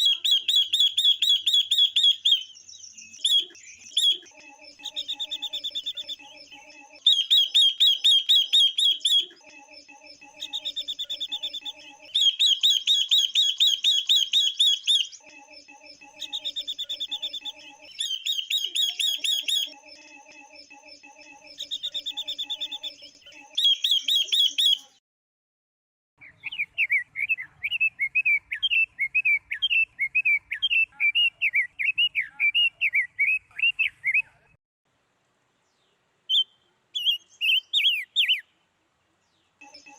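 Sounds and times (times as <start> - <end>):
high bird chirps: 0.0 - 25.0, 36.3 - 38.5, 39.6 - 39.9
lower bird chirps: 0.0 - 25.0, 35.7 - 38.6.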